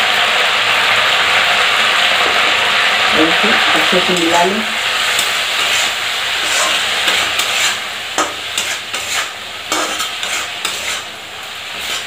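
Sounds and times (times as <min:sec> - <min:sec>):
peas and spices sizzling: 0:00.0 - 0:12.0
spatula scraping pan: 0:03.5 - 0:12.0.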